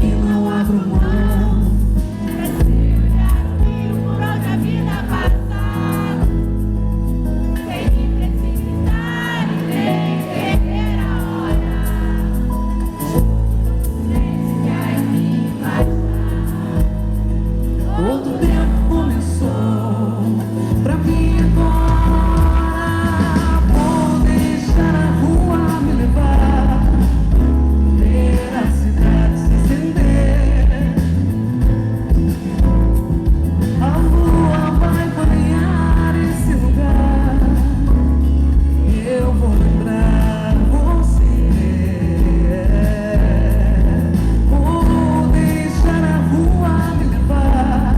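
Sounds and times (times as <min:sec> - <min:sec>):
live pop band music: 0:00.0 - 0:47.9
person singing: 0:17.8 - 0:31.3, 0:33.8 - 0:38.2.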